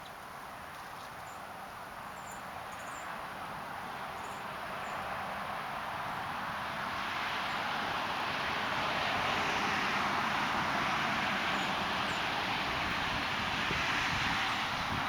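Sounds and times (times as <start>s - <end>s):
steady rushing noise: 12.5s - 15.0s.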